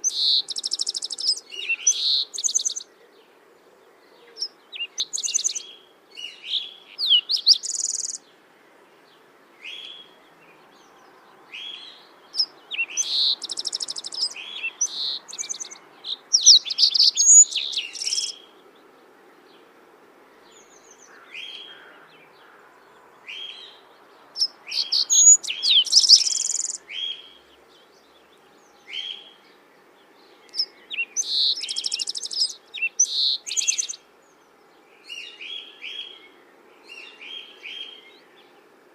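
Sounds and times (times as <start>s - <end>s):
songbird chirping and trilling: 0.0s - 19.7s, 20.3s - 38.9s
faint background hiss: 0.0s - 38.9s.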